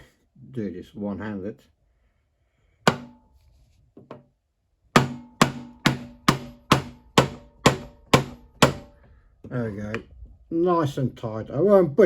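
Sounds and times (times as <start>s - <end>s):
hammer striking metal: 2.9s - 3.2s, 5.0s - 9.0s.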